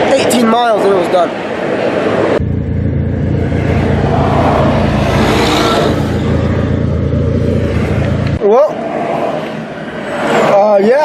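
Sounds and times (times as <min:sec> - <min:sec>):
low vehicle rumble: 0:02.4 - 0:08.4.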